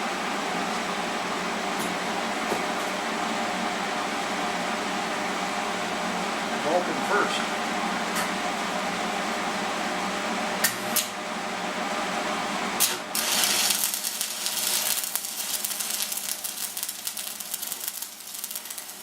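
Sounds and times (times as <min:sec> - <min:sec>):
welder hum: 0:12.6 - 0:19.0
welding arc crackling: 0:12.8 - 0:19.0.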